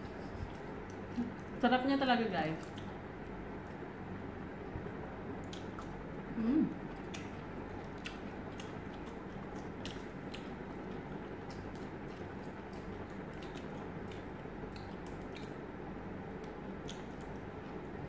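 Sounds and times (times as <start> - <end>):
people chewing: 0.0 - 1.6, 5.4 - 15.6
low steady hum: 0.0 - 18.0.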